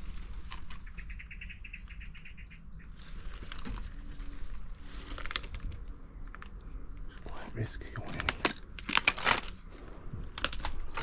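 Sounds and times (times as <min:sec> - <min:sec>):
small bird trilling: 0:00.8 - 0:02.8
light crackles and clicks: 0:03.4 - 0:07.2, 0:08.0 - 0:09.7.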